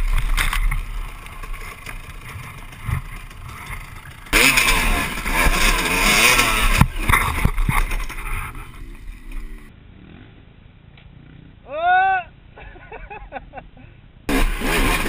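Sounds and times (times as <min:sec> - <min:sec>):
dirt bike engine revving: 0:00.0 - 0:09.7, 0:14.3 - 0:15.0
faint engine running: 0:00.0 - 0:10.4.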